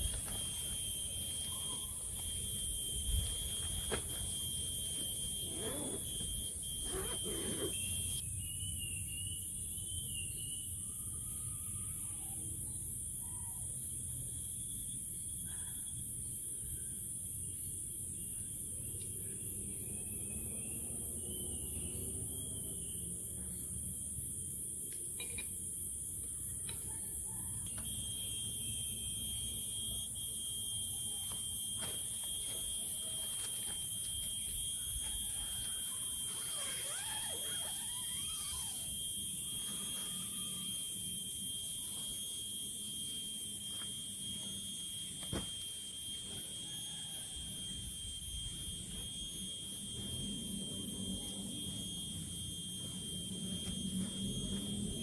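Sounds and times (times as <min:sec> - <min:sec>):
scattered clicks: 0:00.0 - 0:08.2, 0:27.7 - 0:55.0
high-pitched insect chorus: 0:00.0 - 0:24.9, 0:27.1 - 0:55.0.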